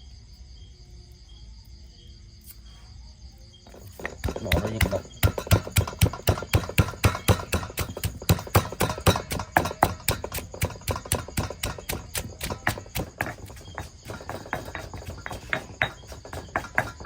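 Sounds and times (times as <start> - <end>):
rapid knocking: 3.7 - 17.0.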